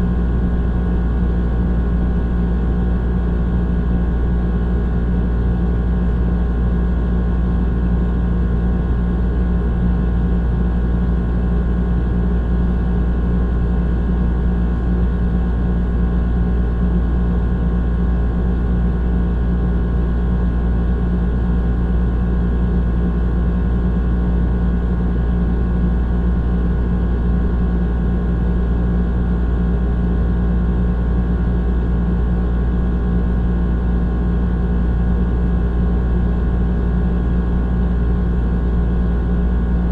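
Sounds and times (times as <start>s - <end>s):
fan noise: 0.0s - 39.9s.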